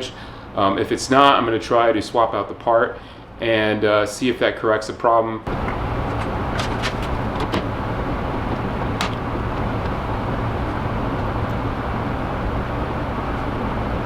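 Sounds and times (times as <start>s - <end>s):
constant noise: 5.4s - 14.0s
steady low hum: 5.4s - 14.0s.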